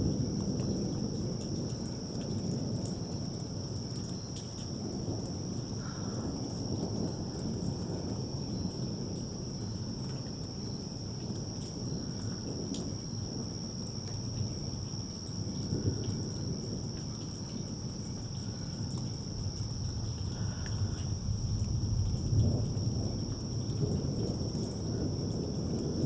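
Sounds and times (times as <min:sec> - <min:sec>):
crickets chirping: 0:00.0 - 0:26.0
distant thunder rumbling: 0:04.8 - 0:13.6, 0:14.5 - 0:26.0.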